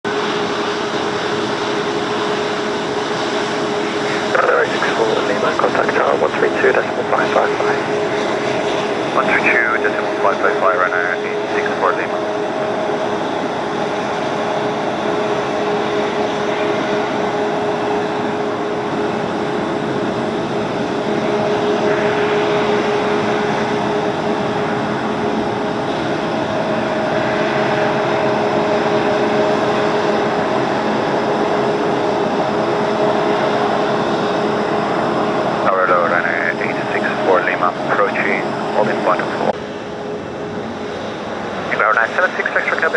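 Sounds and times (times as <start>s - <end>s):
jet engines roaring: 0.1s - 42.9s
steady hum: 1.4s - 42.9s.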